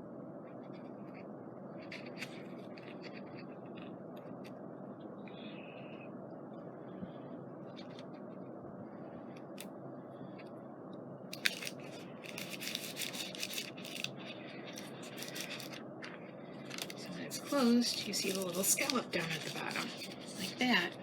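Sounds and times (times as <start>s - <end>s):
paper rustling: 1.8s - 4.6s, 11.4s - 21.0s.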